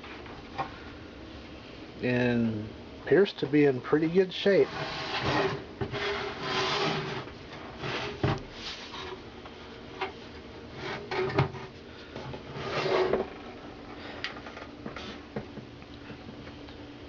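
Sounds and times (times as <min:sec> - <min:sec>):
rubbing and scraping: 0:04.6 - 0:09.2, 0:12.4 - 0:13.5.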